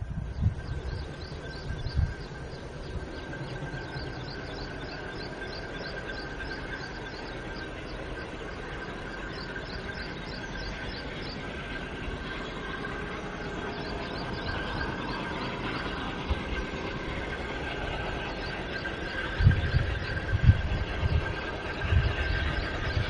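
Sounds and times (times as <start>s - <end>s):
low outdoor rumble: 0.0s - 23.0s
steady high whine: 0.0s - 23.0s
bird chirping: 0.3s - 11.9s, 13.4s - 16.6s.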